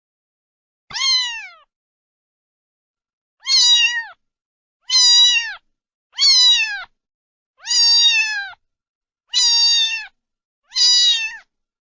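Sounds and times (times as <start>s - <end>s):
cat meowing: 0.9s - 1.7s, 3.4s - 4.2s, 4.8s - 5.6s, 6.2s - 6.9s, 7.6s - 8.6s, 9.3s - 11.5s.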